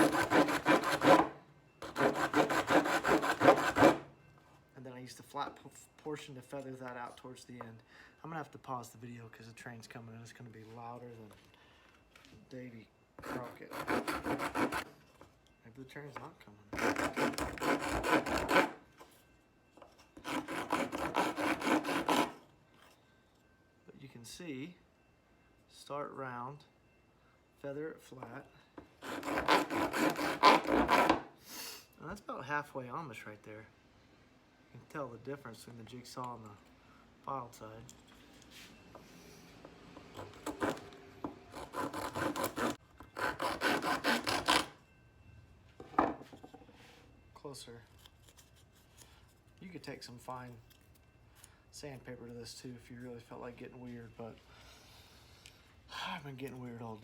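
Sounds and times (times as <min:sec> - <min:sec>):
file rasping on wood: 0:00.0 - 0:04.0, 0:13.2 - 0:14.9, 0:16.8 - 0:18.8, 0:20.2 - 0:22.4, 0:29.0 - 0:31.2, 0:40.1 - 0:40.9, 0:41.5 - 0:44.7.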